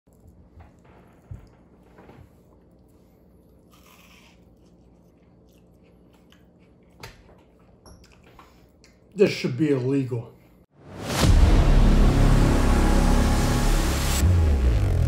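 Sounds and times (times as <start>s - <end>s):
faint chewing: 0.1s - 9.2s.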